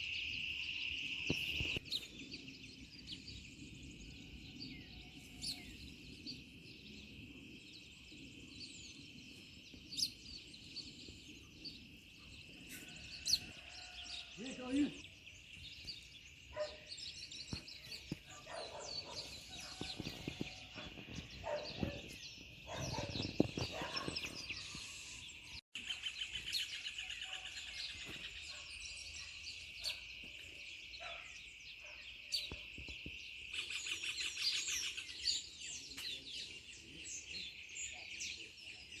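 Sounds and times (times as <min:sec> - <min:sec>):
insects droning: 0:00.0 - 0:15.6
birds chirping and trilling: 0:00.0 - 0:39.0.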